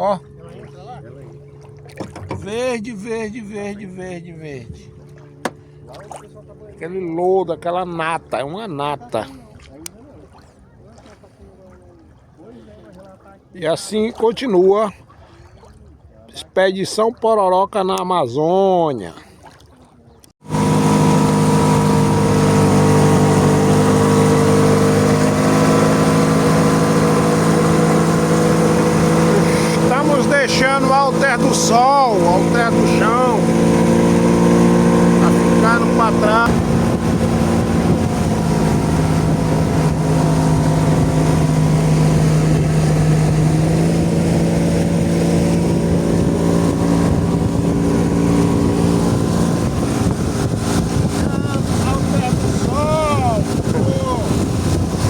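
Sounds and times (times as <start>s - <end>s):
engine running steadily: 3.2s - 6.9s, 20.4s - 55.0s
wind buffeting microphone: 20.5s - 55.0s.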